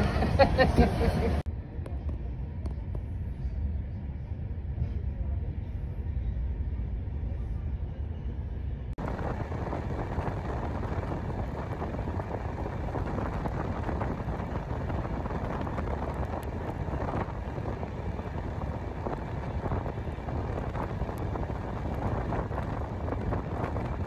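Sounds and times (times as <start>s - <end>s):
train running rumble: 0.0s - 24.0s
wind buffeting microphone: 9.0s - 24.0s.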